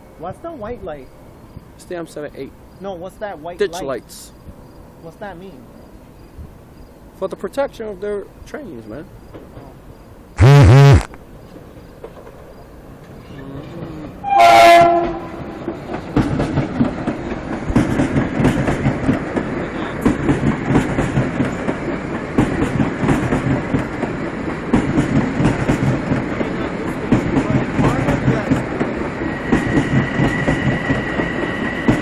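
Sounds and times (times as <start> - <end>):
train rolling rumble: 0.0 - 10.4, 11.2 - 32.0
train wheels clicking over rail joints: 7.5 - 10.0, 11.4 - 13.2, 14.9 - 32.0
train horn blast: 10.4 - 11.0, 14.2 - 15.5.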